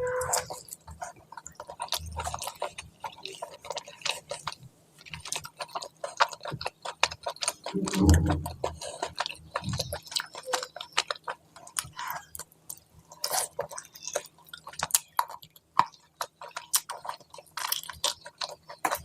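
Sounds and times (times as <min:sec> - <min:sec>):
person chewing food: 0:00.0 - 0:19.0
low mouth sound: 0:07.7 - 0:08.9.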